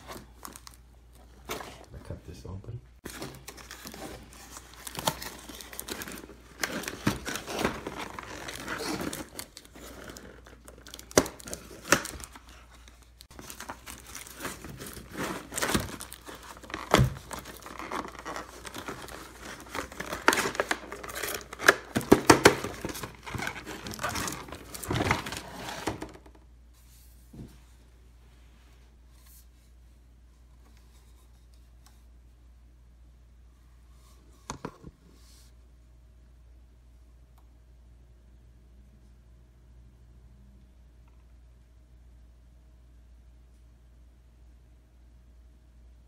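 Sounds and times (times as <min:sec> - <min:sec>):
plastic wrap crinkling: 0:03.1 - 0:26.0.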